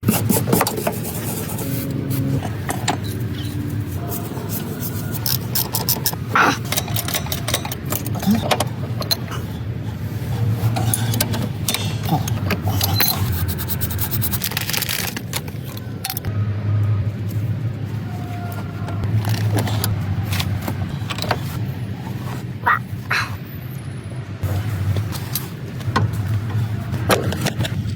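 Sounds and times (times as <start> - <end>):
metal tool clicks and knocks: 5.3 - 9.2.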